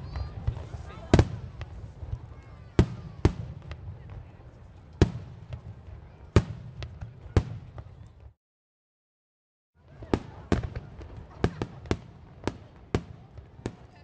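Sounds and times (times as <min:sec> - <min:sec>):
fireworks bangs: 0:00.0 - 0:08.3.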